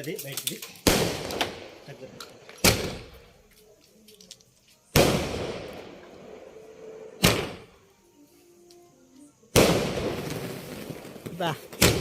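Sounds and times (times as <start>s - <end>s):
firecracker bangs echoing: 0.8s - 1.9s, 5.0s - 6.0s, 9.6s - 12.0s.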